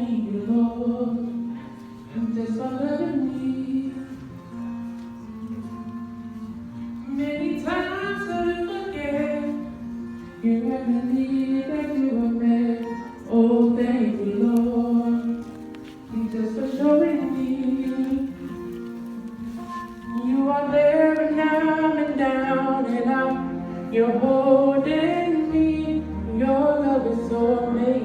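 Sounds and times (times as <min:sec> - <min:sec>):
woman singing: 0:00.0 - 0:04.5, 0:06.3 - 0:28.0
instrumental accompaniment: 0:00.0 - 0:28.0
person singing: 0:00.0 - 0:28.0.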